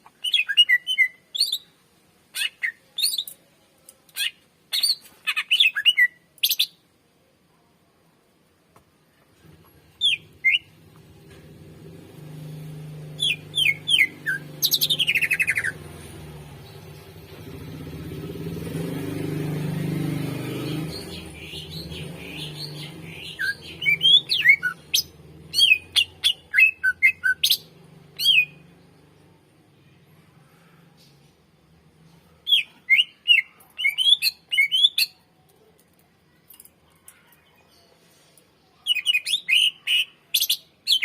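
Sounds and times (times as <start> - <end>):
bird singing whistled notes: 13.2 - 15.8, 20.6 - 28.6
bird trill: 13.2 - 15.8.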